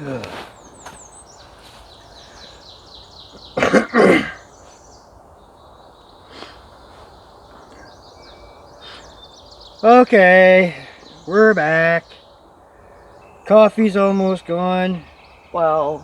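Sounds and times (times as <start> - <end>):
songbird singing: 0.0 - 16.0
person coughing: 3.6 - 4.4.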